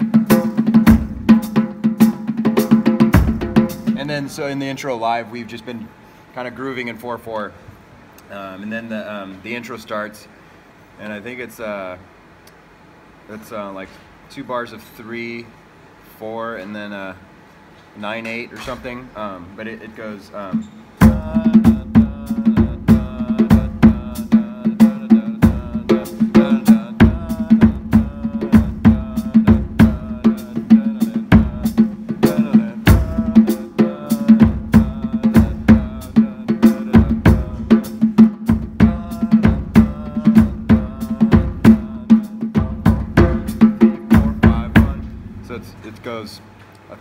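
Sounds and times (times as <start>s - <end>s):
hand drumming on drum kit: 0.0s - 4.0s, 21.0s - 45.5s
bass drum: 0.0s - 4.2s, 21.0s - 45.8s.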